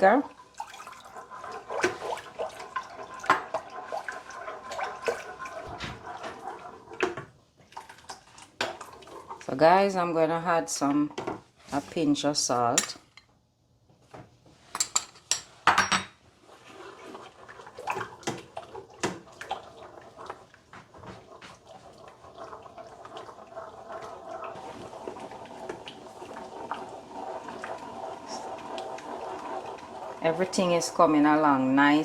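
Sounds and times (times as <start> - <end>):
sauce bubbling in a pot: 0.0 - 9.6, 16.4 - 32.0.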